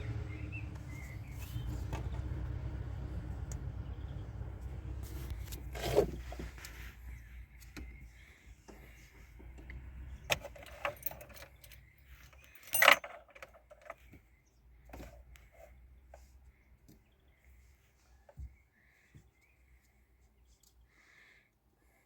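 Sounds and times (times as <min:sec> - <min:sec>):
metal jangling clatter: 0:10.3 - 0:14.0
small metal objects clinking: 0:10.4 - 0:14.0.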